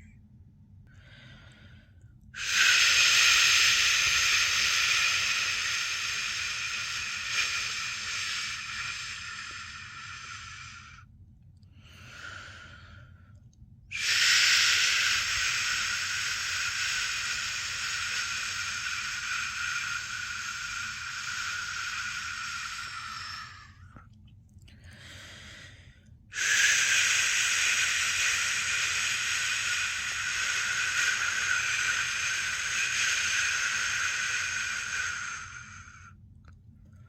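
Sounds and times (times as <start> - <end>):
person shushing: 14.0 - 23.8, 26.4 - 36.0.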